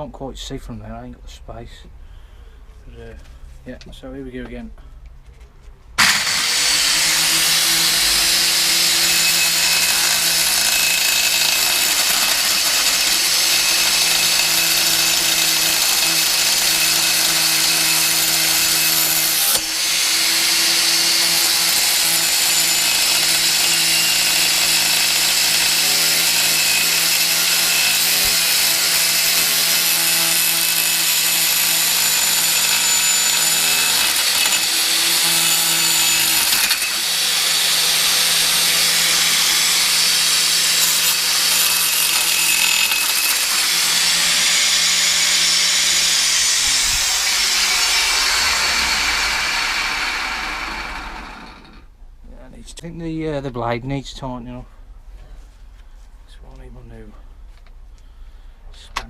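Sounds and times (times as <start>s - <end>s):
angle grinder cutting metal: 6.0s - 51.9s.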